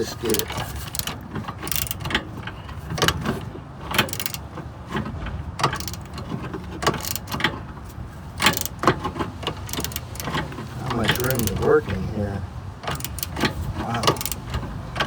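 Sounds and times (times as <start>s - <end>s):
ratchet wrench clicking: 0.0s - 2.2s, 3.9s - 4.5s, 5.6s - 6.2s, 6.8s - 7.4s, 8.4s - 11.7s, 12.8s - 14.7s
metal clacks: 0.0s - 12.0s, 12.8s - 15.0s.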